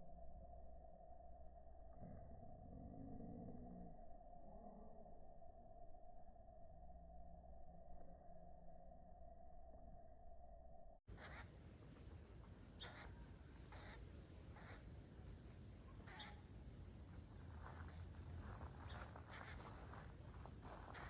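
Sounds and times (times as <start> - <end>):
insect drone: 0.0 - 21.0
woodpecker buzzy calls: 11.1 - 16.8, 17.6 - 21.0.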